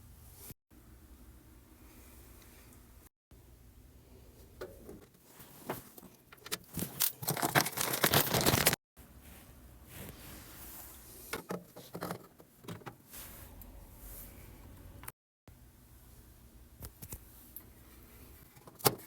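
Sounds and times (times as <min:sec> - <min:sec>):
plastic parts scraping and clicking: 0:06.0 - 0:08.8, 0:11.3 - 0:13.0.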